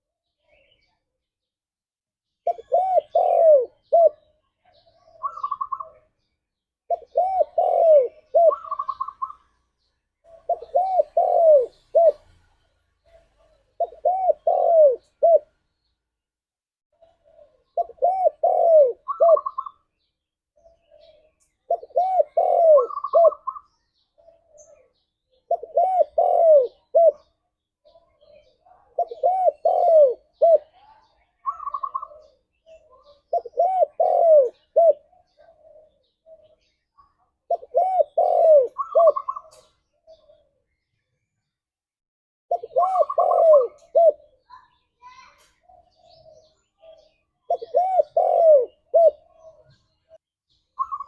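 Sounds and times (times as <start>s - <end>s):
dove cooing: 2.4s - 6.1s, 6.9s - 9.6s, 10.3s - 12.4s, 13.1s - 15.6s, 17.0s - 19.9s, 20.6s - 40.6s, 42.5s - 44.5s, 45.6s - 50.2s, 50.8s - 51.0s.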